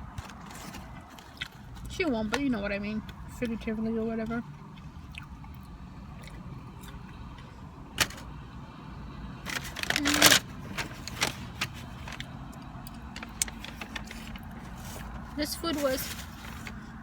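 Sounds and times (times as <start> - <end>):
rustling and clatter of objects: 0.0 - 2.6, 8.0 - 8.3, 9.5 - 12.4, 13.0 - 17.0.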